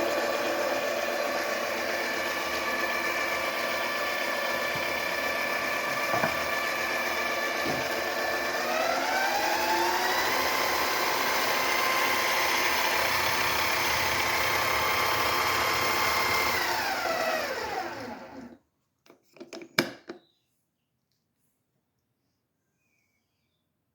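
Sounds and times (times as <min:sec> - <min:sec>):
lathe motor whine: 0:00.0 - 0:18.6.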